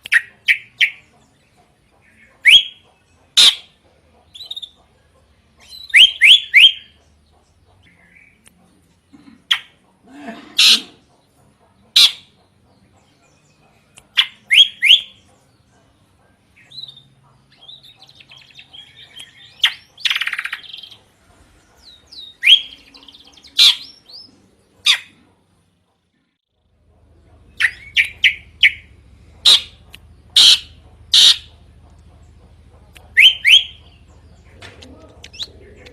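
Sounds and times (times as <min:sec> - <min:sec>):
harsh buzzy bird rasp: 0:10.6 - 0:11.1, 0:27.6 - 0:31.7
bird singing sharp notes: 0:27.5 - 0:31.6, 0:33.0 - 0:35.9
rising bird whistles: 0:33.2 - 0:33.8.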